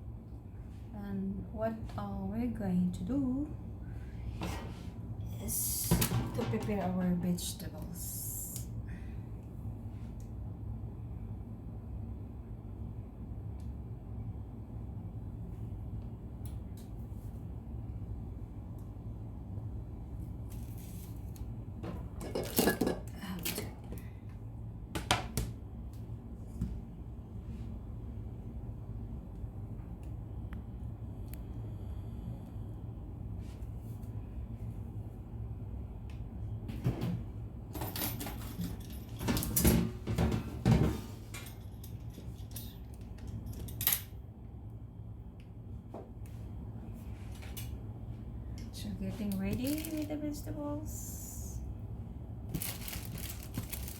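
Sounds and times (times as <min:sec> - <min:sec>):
low steady hum: 0:00.0 - 0:53.9
dishes and utensils clattering: 0:22.2 - 0:23.1.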